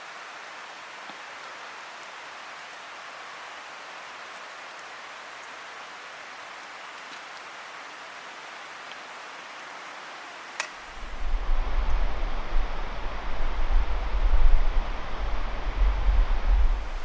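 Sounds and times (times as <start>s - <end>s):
campfire hissing and crackling: 0.0s - 17.0s
wind rumble on microphone: 10.9s - 17.0s.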